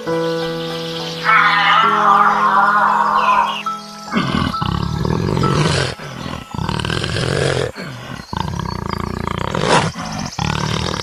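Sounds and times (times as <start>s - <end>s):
big cat growling and roaring: 4.1s - 11.0s.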